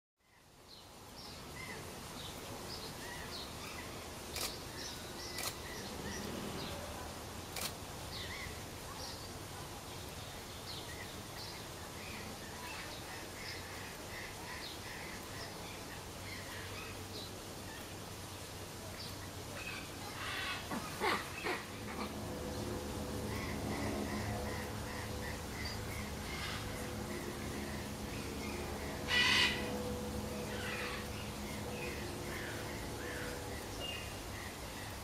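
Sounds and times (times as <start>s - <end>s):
small birds chirping: 0.2s - 6.8s
steady hiss: 0.3s - 35.0s.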